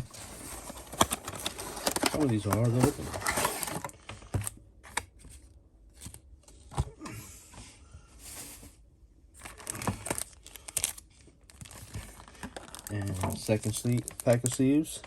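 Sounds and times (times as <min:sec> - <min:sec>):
plastic wrapper tearing and crinkling: 0:00.0 - 0:03.9, 0:09.4 - 0:15.0.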